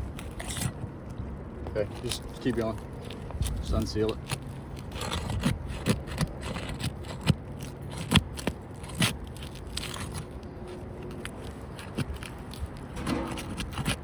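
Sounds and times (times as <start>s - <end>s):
roof shingle scraping and crackling: 0.0s - 1.1s, 1.7s - 14.0s
shingle snapping: 11.2s - 14.0s.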